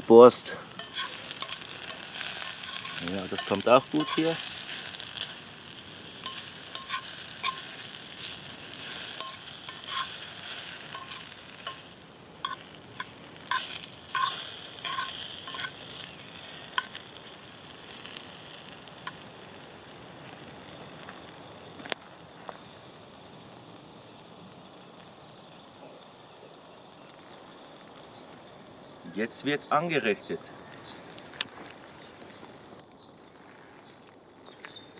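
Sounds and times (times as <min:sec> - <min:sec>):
food sizzling in a pan: 0:00.0 - 0:32.8
utensil scraping a pan: 0:00.7 - 0:05.4, 0:06.2 - 0:17.0.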